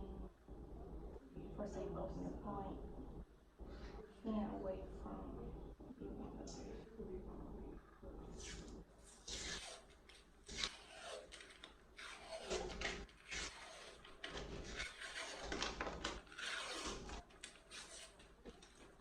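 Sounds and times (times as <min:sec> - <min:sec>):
wrapper scraping and rustling: 0:08.4 - 0:19.0.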